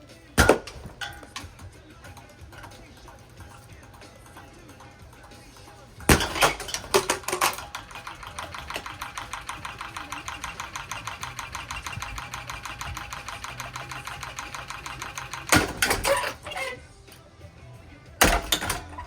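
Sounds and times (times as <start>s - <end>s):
ceiling fan clattering: 0.0s - 19.0s.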